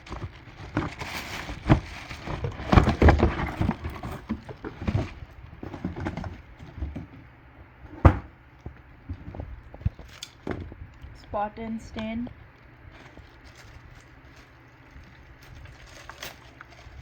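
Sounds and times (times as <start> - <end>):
packaging rustling: 0.0 - 6.8.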